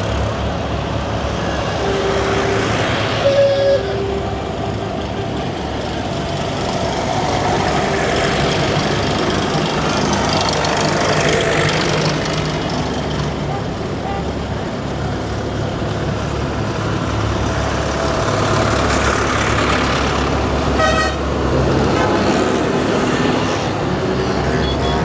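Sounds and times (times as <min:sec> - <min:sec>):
tractor engines driving past: 0:00.0 - 0:25.0.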